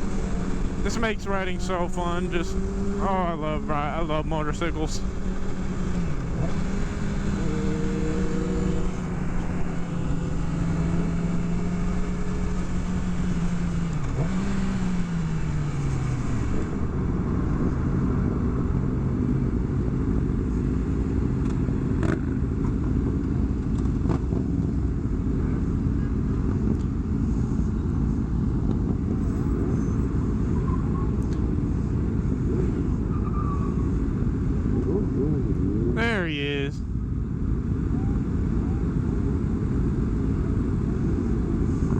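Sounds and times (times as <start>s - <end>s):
motorcycle engine running: 0.0s - 28.6s
wind and road noise: 0.0s - 41.9s.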